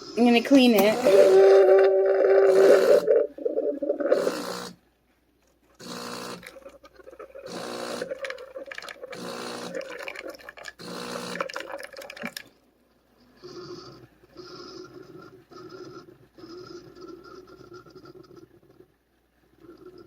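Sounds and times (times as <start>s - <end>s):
pump humming with watery hiss: 0.0s - 4.8s, 5.8s - 12.5s.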